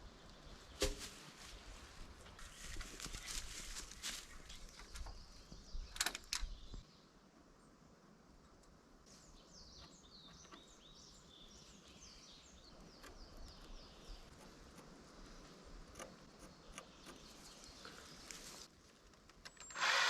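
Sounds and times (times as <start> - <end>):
songbird chirping: 0.0 - 7.8, 8.4 - 20.0
rustling: 0.6 - 5.1, 13.4 - 20.0
sharp clicks: 15.8 - 17.4.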